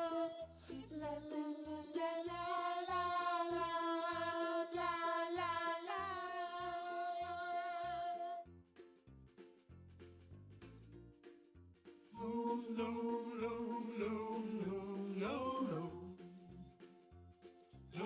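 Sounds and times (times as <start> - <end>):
soft wordless humming melody: 0.0 - 8.4, 12.2 - 17.1.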